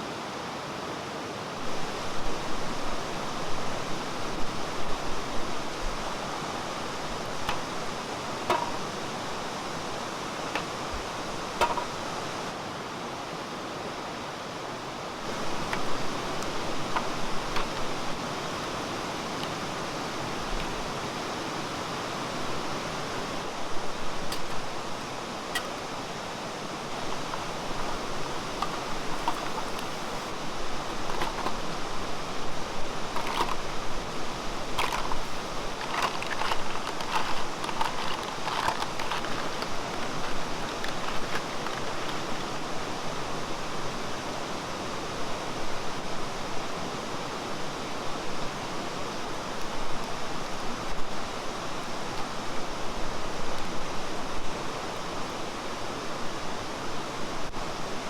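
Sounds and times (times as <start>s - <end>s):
stream water babbling: 14.2s - 44.9s.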